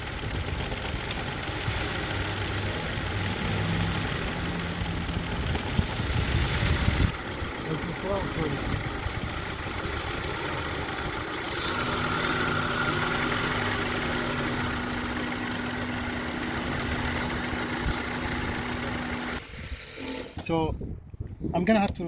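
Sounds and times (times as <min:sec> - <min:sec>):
car engine idling: 0:00.0 - 0:19.5
steady pitched hum: 0:02.9 - 0:20.4.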